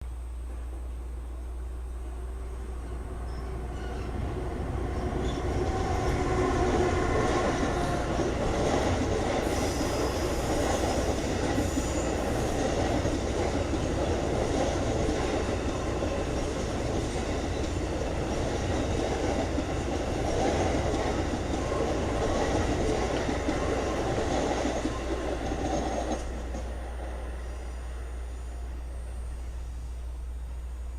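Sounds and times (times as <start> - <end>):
train wheels rumbling on rail: 0.4 - 30.9
high-pitched hiss: 9.4 - 12.8, 26.4 - 30.9.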